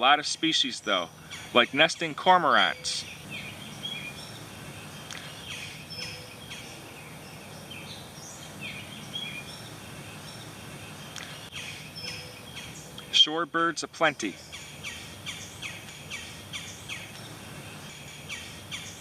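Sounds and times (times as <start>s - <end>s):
birds chirping: 0.0s - 19.0s
low background noise: 0.0s - 19.0s.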